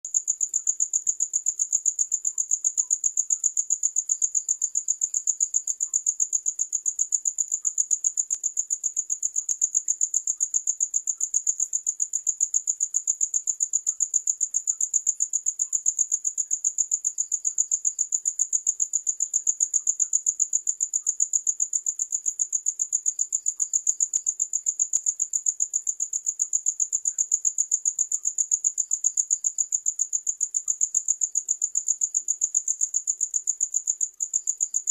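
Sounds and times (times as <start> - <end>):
cricket chirping: 0.1 - 34.9.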